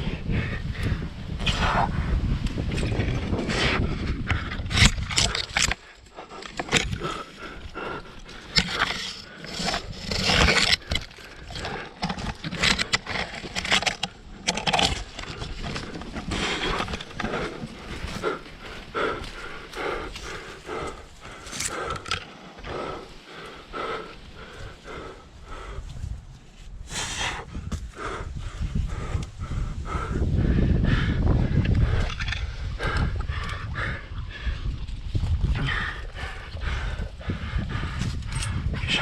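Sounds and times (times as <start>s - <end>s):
low microphone rumble: 0.0s - 5.5s, 14.1s - 39.0s
scrapes and clicks against rock: 2.4s - 22.8s, 31.6s - 33.6s.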